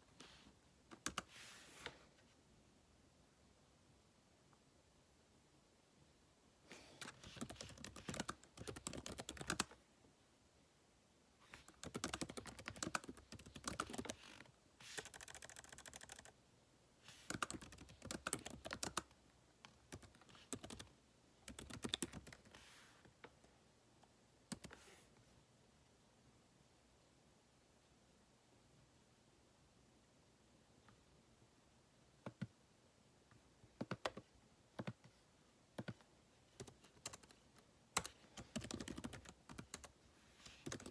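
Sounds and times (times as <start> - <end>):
typing on computer keyboard: 7.0 - 9.8, 11.7 - 16.4, 17.3 - 19.1, 19.9 - 22.6, 36.6 - 37.4, 38.0 - 39.9, 40.5 - 40.9.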